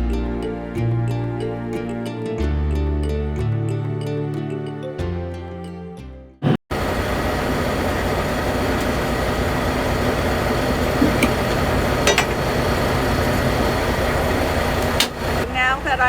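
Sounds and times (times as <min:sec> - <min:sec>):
diesel truck engine idling: 0:06.7 - 0:16.0.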